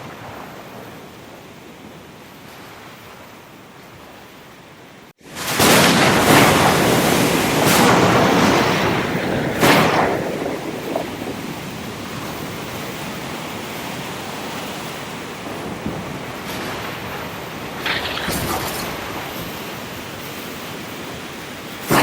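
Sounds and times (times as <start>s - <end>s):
ocean surf crashing on shore: 5.2s - 22.0s.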